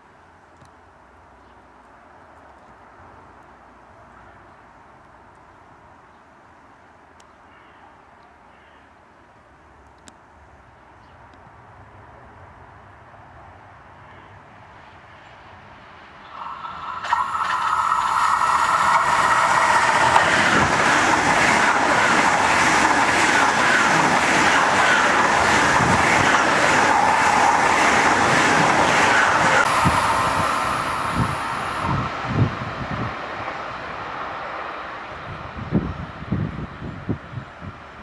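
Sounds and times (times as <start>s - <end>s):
high-speed train passing: 11.6s - 38.0s
rush of wheels on rail: 16.0s - 38.0s.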